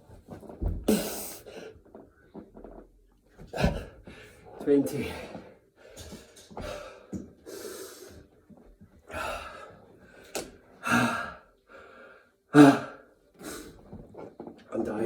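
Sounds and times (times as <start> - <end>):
man gasping and panting: 10.8 - 13.9.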